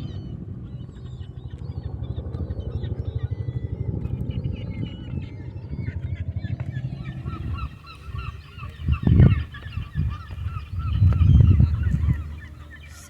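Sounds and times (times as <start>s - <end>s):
low fluttering rumble: 0.0s - 13.0s
flock of birds calling: 7.0s - 13.0s.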